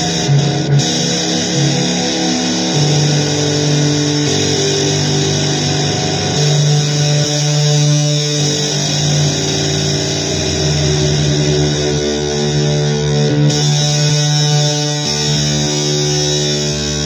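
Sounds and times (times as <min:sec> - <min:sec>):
slow blues guitar: 0:00.0 - 0:17.0.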